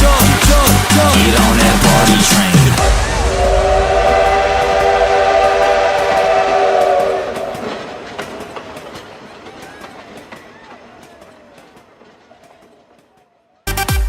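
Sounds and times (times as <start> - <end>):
rumbling train: 0.0 - 13.6
train whistle chord: 1.2 - 8.0.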